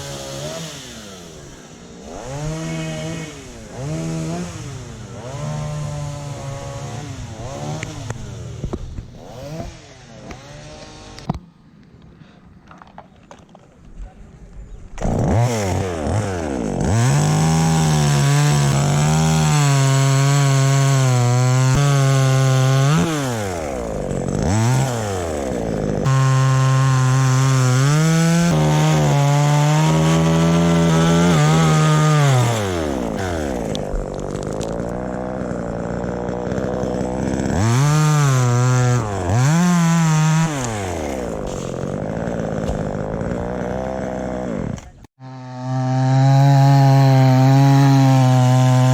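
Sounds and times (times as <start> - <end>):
chainsaw cutting wood: 0.0 - 11.6, 14.9 - 48.9.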